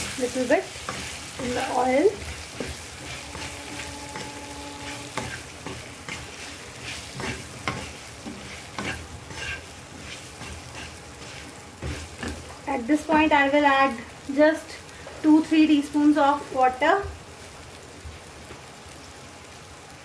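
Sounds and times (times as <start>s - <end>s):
wooden spatula scraping a pan: 0.0s - 12.6s
okra sizzling in oil: 0.0s - 20.0s.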